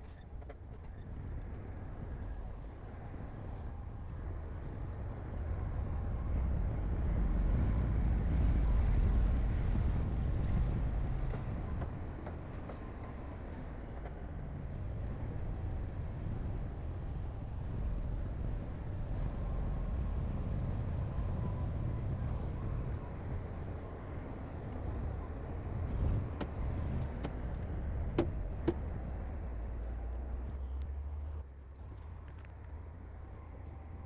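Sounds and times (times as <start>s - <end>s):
diesel machinery engine rumble: 22.3s - 31.4s.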